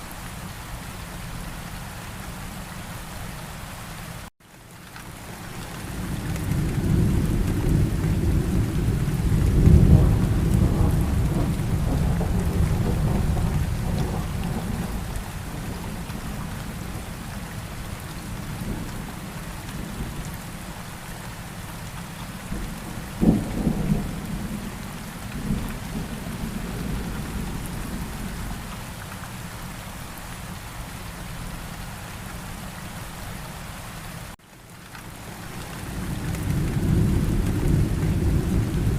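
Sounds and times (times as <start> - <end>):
steady rain falling: 0.0 - 38.9
rolling thunder rumble: 6.0 - 17.3, 22.5 - 28.7, 35.8 - 38.9.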